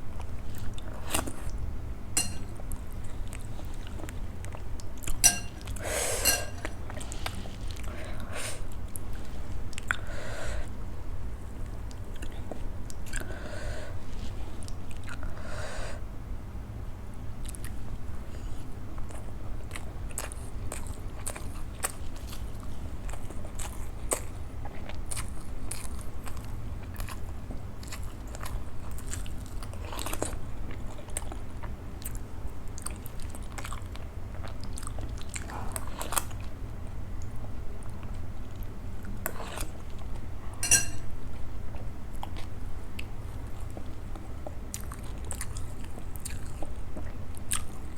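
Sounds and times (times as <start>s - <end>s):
chewing and mouth noises: 11.6s - 13.3s, 17.4s - 40.3s, 41.7s - 47.9s.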